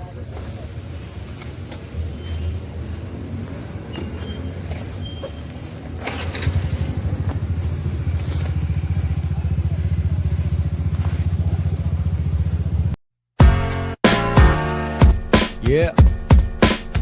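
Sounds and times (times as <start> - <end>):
small motorcycle engine running: 6.0 - 13.0
music: 13.4 - 17.0.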